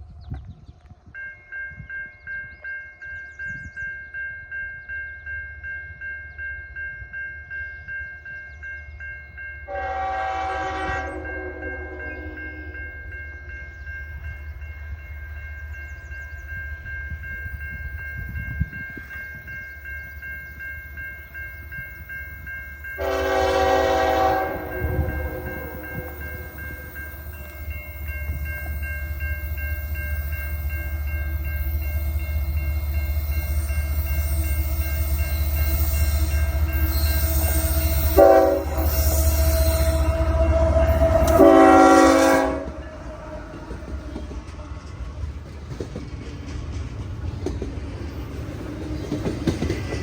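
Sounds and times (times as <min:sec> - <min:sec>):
diesel train rumble: 0:07.1 - 0:50.0
locomotive air horn: 0:09.7 - 0:12.8, 0:23.0 - 0:26.6, 0:36.1 - 0:43.6.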